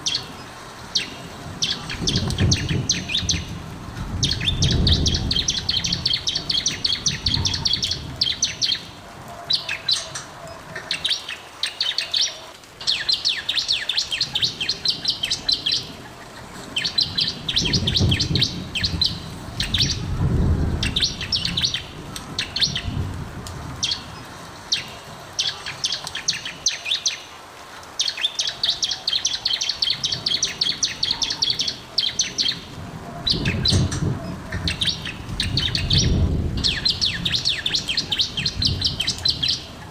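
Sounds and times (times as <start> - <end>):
bird chattering song: 4.2 - 8.9, 16.8 - 20.1, 20.8 - 22.9, 28.0 - 32.7, 33.3 - 39.9.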